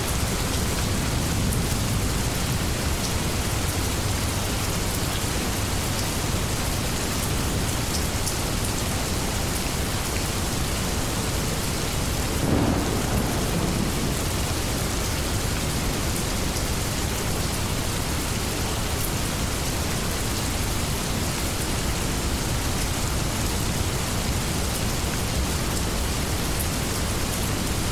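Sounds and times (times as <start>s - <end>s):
heavy rain: 0.0s - 27.9s
low rumble of thunder: 10.6s - 18.1s.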